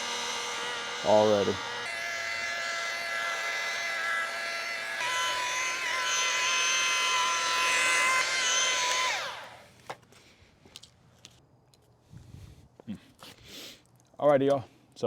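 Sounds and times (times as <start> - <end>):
polishing machine motor whine: 0.0 - 9.6.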